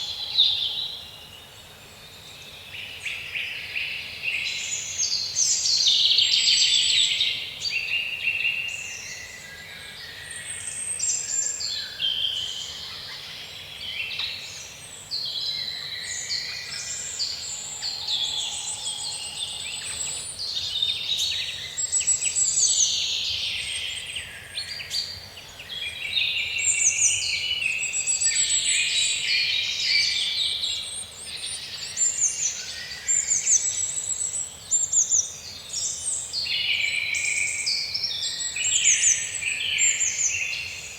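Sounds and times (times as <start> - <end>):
chorus of birds singing: 0.0 - 40.9.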